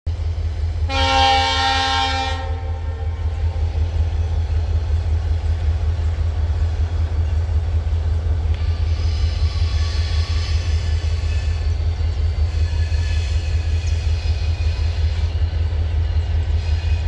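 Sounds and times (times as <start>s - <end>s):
locomotive air horn blast: 0.9s - 3.3s.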